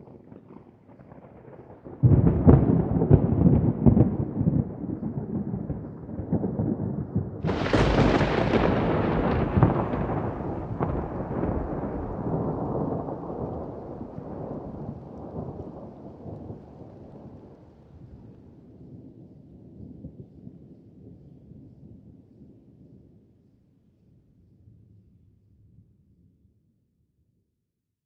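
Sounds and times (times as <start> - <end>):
rain: 0.0 - 21.4
thunder rumbling and cracking: 0.1 - 18.8.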